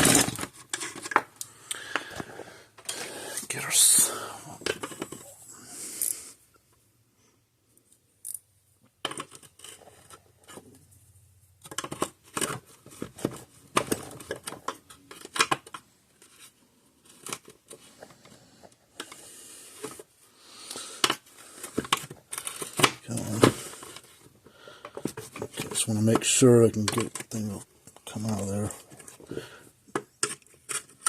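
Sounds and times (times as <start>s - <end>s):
hand tools clicking and scraping: 20.6s - 31.0s.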